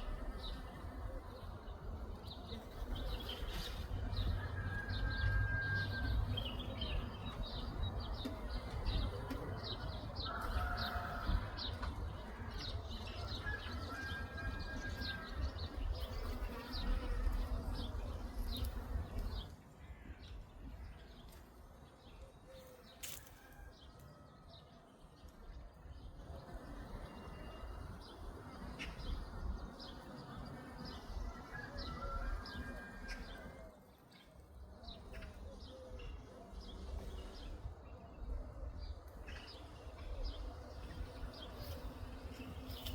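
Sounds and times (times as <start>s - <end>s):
small birds singing: 0.0s - 42.9s.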